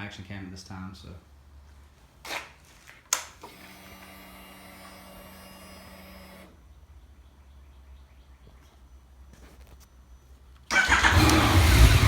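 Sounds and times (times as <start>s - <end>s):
electric fuel pump whirring: 3.4s - 6.6s, 10.8s - 12.0s.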